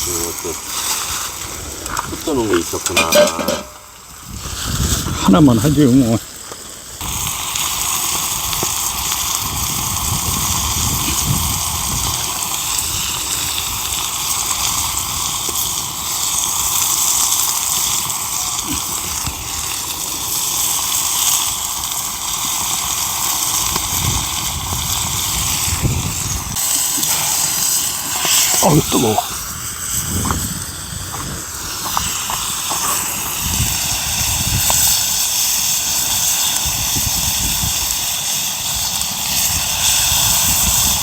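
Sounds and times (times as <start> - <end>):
food sizzling on a griddle: 0.0 - 41.0
wind rumbling on microphone: 4.0 - 6.0, 7.0 - 15.9, 22.9 - 35.2, 36.2 - 38.0, 38.7 - 41.0.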